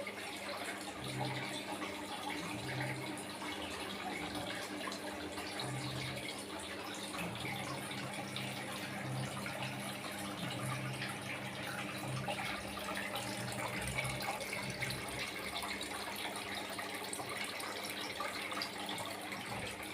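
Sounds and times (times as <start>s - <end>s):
water pouring and splashing: 0.0s - 19.9s.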